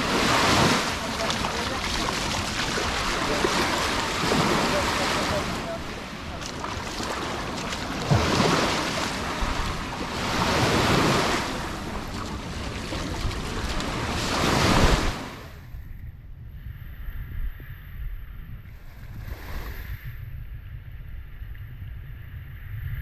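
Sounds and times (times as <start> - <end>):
sea waves washing onto beach: 0.0 - 15.6
wind on microphone: 0.0 - 23.0.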